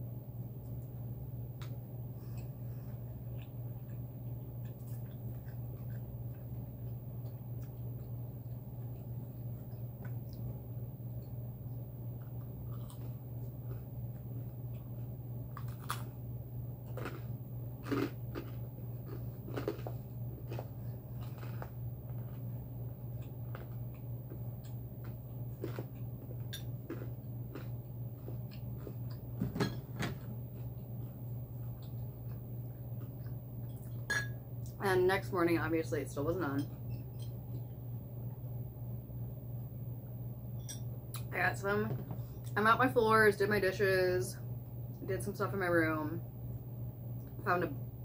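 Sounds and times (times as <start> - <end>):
steady low hum: 0.0 - 48.0
chewing and wet mouth smacks: 1.6 - 10.6.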